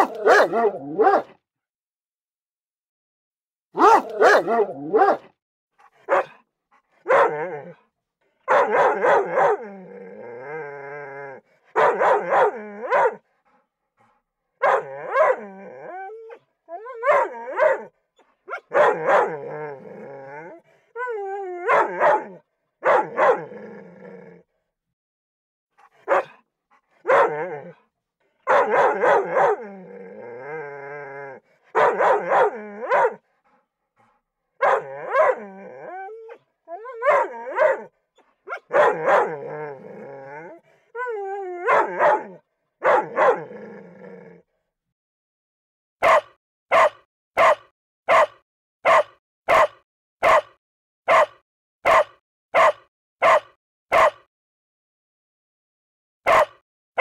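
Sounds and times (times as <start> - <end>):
dog whining: 14.6 - 17.8, 34.6 - 37.9, 38.5 - 42.4.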